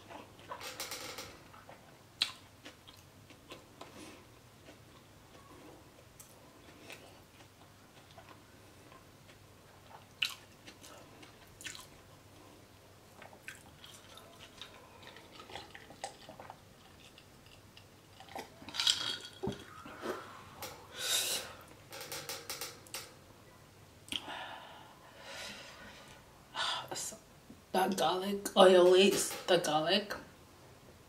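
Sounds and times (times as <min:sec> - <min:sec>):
chewing and wet mouth sounds: 0:01.5 - 0:20.4.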